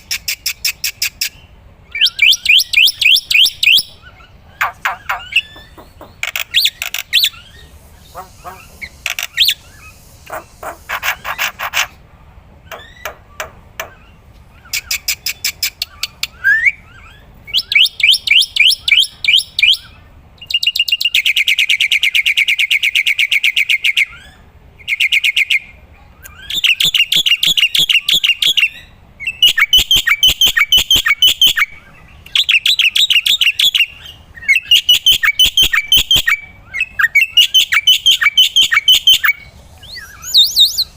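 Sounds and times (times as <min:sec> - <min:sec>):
myna singing chattering notes: 0:07.6 - 0:11.3.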